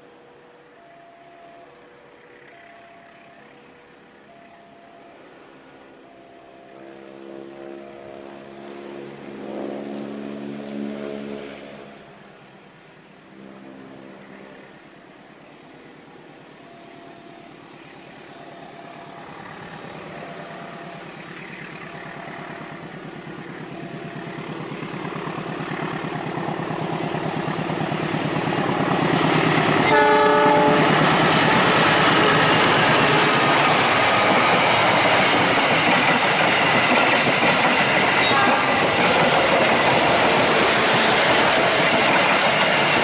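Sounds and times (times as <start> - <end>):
locomotive horn blast: 6.8 - 12.2, 29.7 - 33.4, 38.2 - 39.0
locomotive engine: 15.7 - 43.0
train wheels on rails: 16.1 - 43.0.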